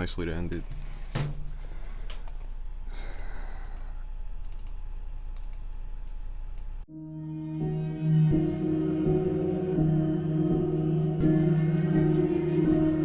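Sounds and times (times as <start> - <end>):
low electrical hum: 0.0 - 6.9
computer mouse clicks: 3.2 - 4.8, 5.4 - 6.7
music with sustained tones: 6.9 - 13.0.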